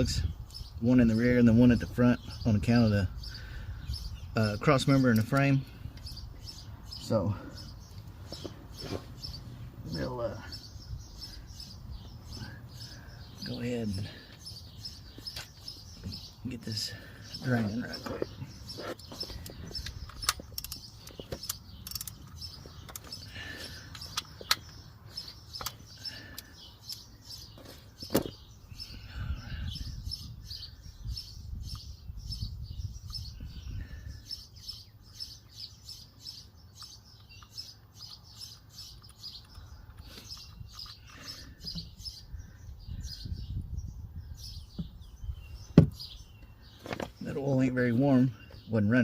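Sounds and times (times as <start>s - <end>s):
small birds chirping: 0.0s - 49.0s
sharp clicks: 19.0s - 23.3s, 23.9s - 24.8s, 25.5s - 27.1s, 36.8s - 41.3s.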